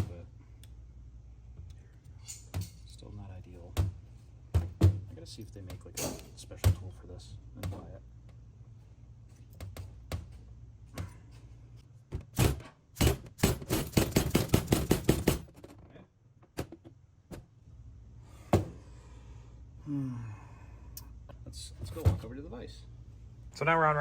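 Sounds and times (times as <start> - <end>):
hammer knocking on metal bushing: 12.1 - 15.6.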